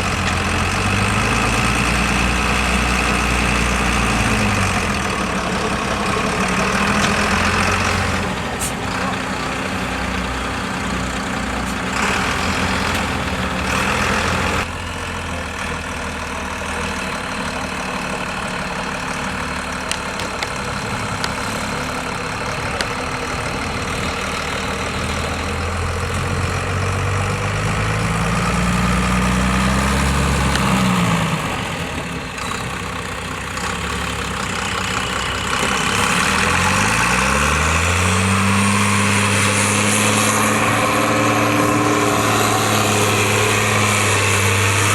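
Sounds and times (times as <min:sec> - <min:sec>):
truck diesel engine revving: 0:00.0 - 0:44.9.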